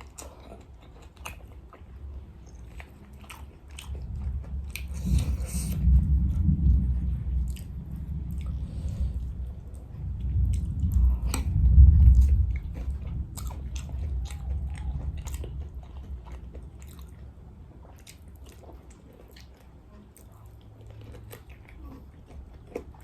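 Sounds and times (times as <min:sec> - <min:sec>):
chewing crunchy fried chicken: 0:00.0 - 0:23.0
low rumble: 0:01.8 - 0:19.6.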